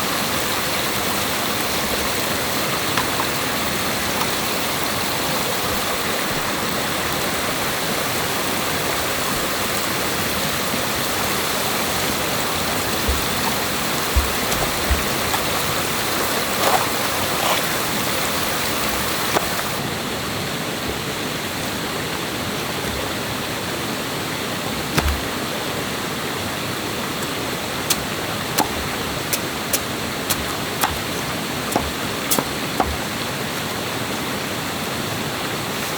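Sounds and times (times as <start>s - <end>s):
rushing stream water: 0.0s - 35.9s
dull knocks: 11.9s - 16.8s, 24.9s - 25.4s, 28.6s - 33.1s.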